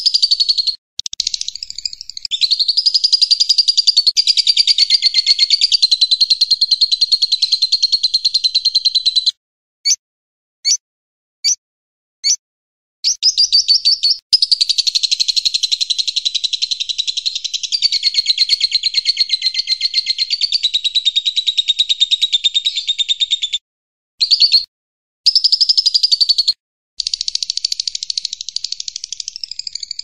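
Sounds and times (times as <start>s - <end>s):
songbird chattering trill: 0.0s - 9.3s, 13.1s - 23.6s, 24.3s - 24.7s.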